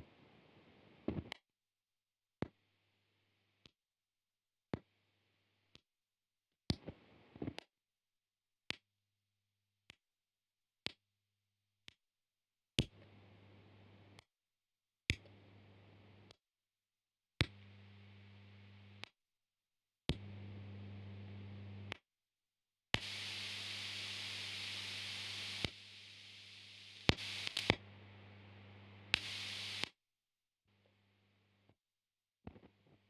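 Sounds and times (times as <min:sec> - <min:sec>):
mains hum with hiss: 0:20.2 - 0:21.9, 0:23.0 - 0:29.9.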